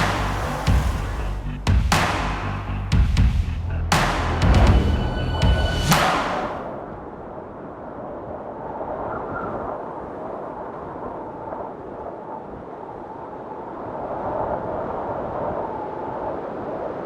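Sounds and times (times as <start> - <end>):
steady rumbling: 0.0 - 7.1.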